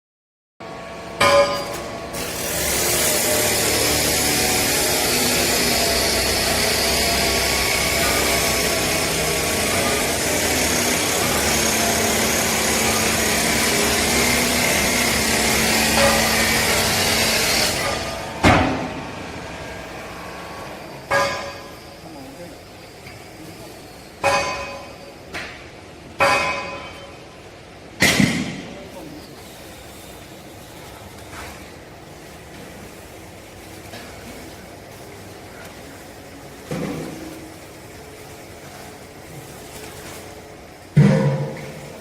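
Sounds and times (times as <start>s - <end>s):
sharp bang: 28.0s - 28.7s.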